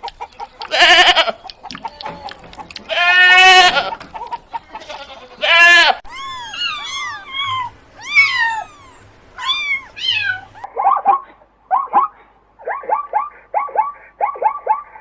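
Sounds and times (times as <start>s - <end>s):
cat meowing: 5.0s - 10.7s.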